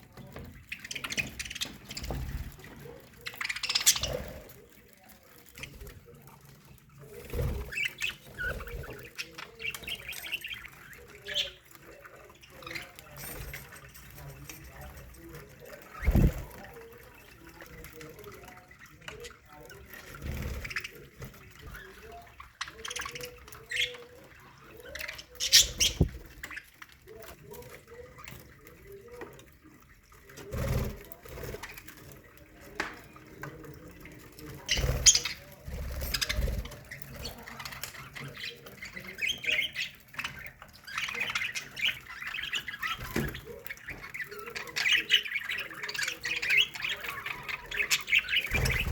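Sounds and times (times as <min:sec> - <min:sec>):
budgerigars chattering and chirping: 0:00.0 - 0:48.9
budgerigars chirping: 0:00.4 - 0:04.5, 0:24.8 - 0:26.6.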